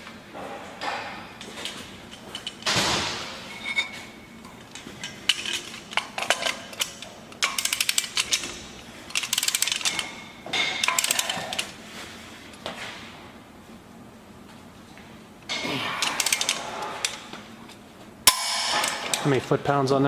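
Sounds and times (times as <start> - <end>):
metal tools clinking: 18.3 - 19.6.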